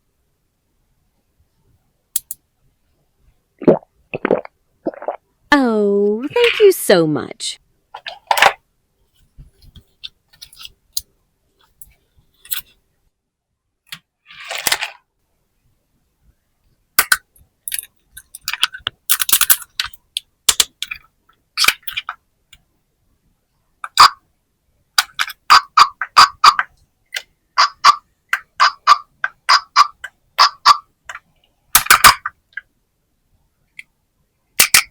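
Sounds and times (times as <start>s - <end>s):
plastic toys clicking and tapping: 2.2s - 2.4s, 17.0s - 22.7s, 23.8s - 24.2s, 25.0s - 32.7s, 34.6s - 34.9s.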